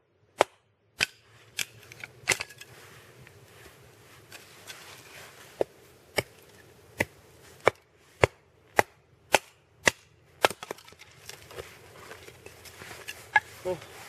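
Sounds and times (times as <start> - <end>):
log splitting cracks: 4.3 - 13.5.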